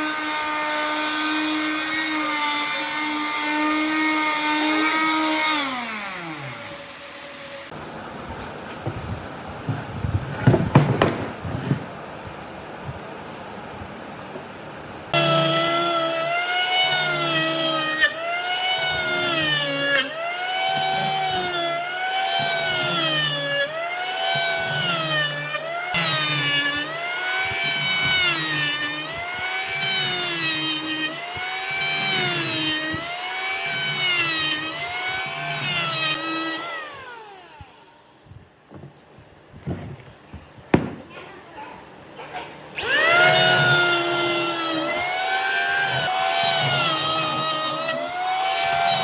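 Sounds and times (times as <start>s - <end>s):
electric power tool motor: 15.2s - 38.4s, 42.8s - 49.0s.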